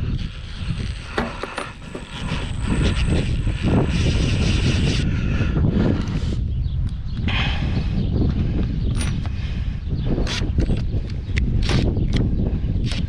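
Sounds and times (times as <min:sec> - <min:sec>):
thin high whine: 0:00.0 - 0:05.2
steady low rumble: 0:00.0 - 0:11.4.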